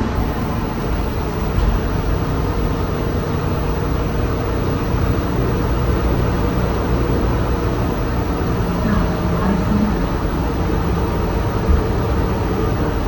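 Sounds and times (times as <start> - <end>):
bus engine and road rumble: 0.0 - 13.0
faint steady tone: 0.0 - 13.0.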